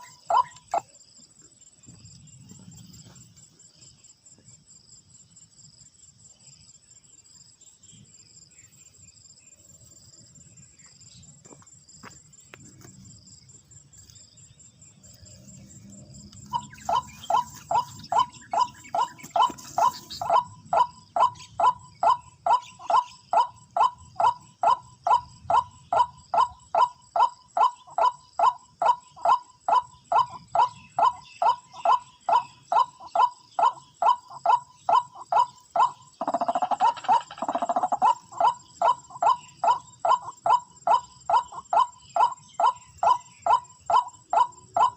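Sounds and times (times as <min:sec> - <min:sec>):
waterhen calls: 0:00.0 - 0:00.8, 0:16.4 - 0:44.9
crickets chirping: 0:00.0 - 0:44.9.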